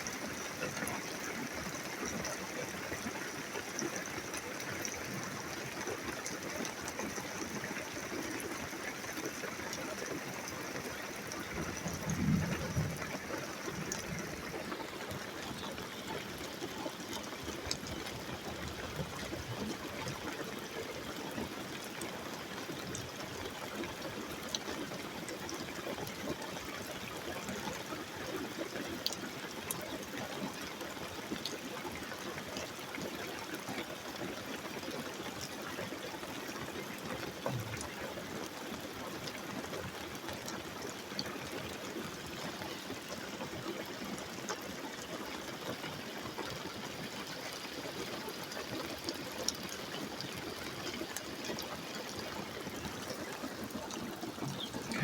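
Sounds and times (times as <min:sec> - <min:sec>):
faint drips: 0:00.6 - 0:22.0, 0:36.5 - 0:55.0
storm rain falling: 0:09.8 - 0:20.0, 0:48.6 - 0:55.0.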